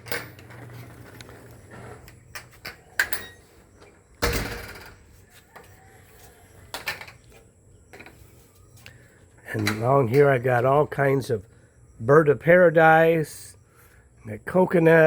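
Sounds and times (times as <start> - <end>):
door opening and shutting: 0.0 - 5.1
door closing thud: 4.2 - 5.1.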